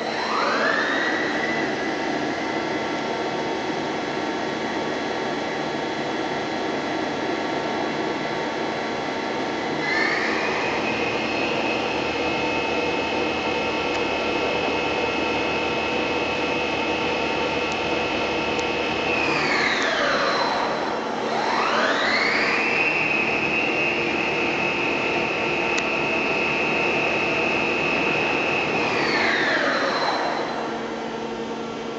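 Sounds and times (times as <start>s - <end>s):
constant machine hum: 0.0s - 31.9s
electric drive whine: 8.5s - 31.9s.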